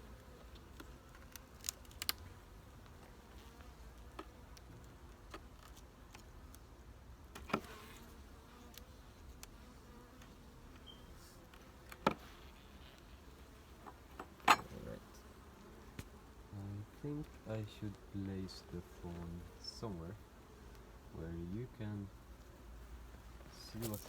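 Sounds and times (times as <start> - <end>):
bees buzzing faintly: 0.0 - 24.0
clicks and knocks from hive handling: 0.4 - 6.6, 7.3 - 7.9, 8.6 - 13.1, 13.8 - 14.9, 15.9 - 16.2.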